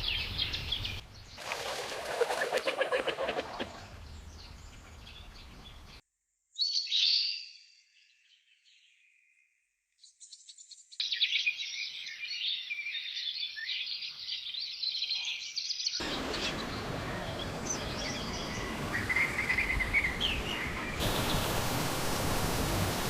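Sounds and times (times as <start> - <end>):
songbirds chirping and singing: 10.0 - 22.0
steady rushing noise: 16.0 - 23.0.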